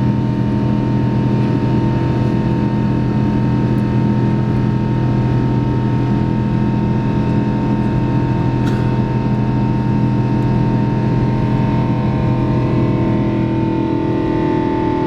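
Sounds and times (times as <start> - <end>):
jet engine cabin drone: 0.0 - 15.0.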